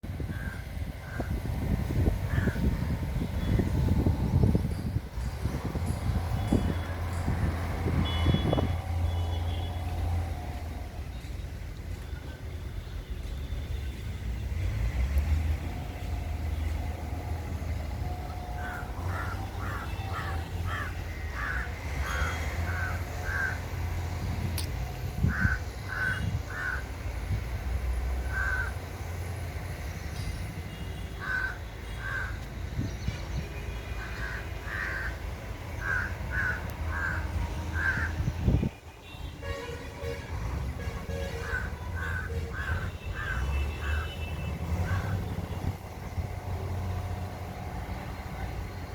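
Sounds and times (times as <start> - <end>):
idling engine hum: 0.0 - 12.1, 14.2 - 48.9
crow cawing: 2.3 - 2.6, 18.6 - 23.7, 25.3 - 26.9, 28.3 - 28.8, 31.2 - 32.4, 34.0 - 35.2, 35.8 - 38.2, 41.4 - 44.2, 44.8 - 45.2.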